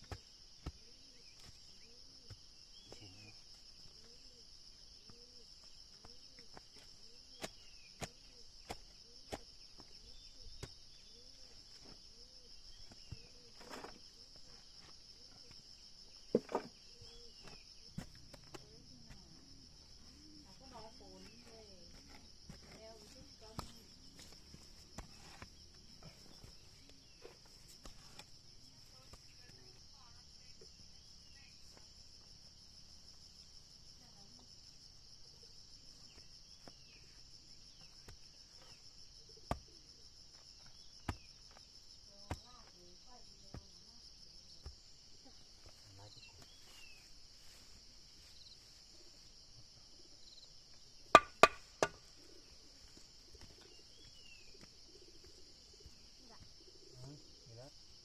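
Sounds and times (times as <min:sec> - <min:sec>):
insects buzzing: 0:00.0 - 0:58.0
knocks on wooden frame: 0:51.2 - 0:52.0.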